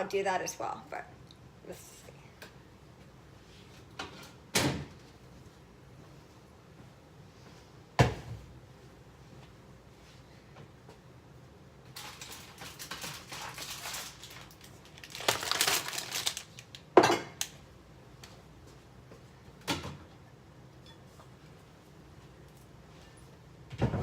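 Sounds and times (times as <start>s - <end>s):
packaging rustling and crinkling: 11.9s - 16.9s.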